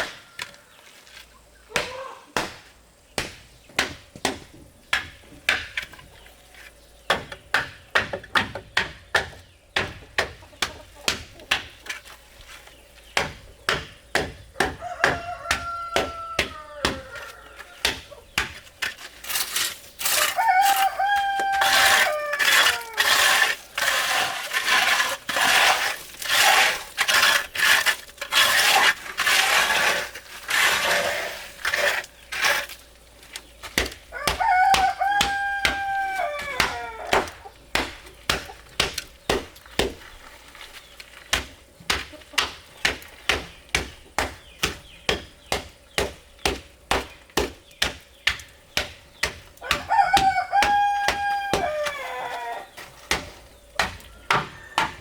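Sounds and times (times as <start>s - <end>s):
rooster crowing: 14.7s - 17.8s, 20.1s - 23.2s, 34.1s - 37.3s, 49.6s - 52.8s, 53.9s - 55.0s
rough crunching noise: 17.0s - 43.7s.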